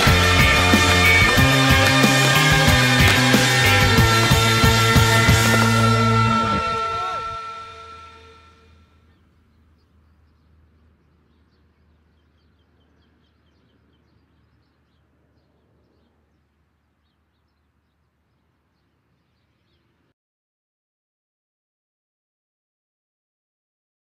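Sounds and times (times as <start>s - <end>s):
rock music: 0.0s - 8.4s
small birds chirping: 9.0s - 20.1s.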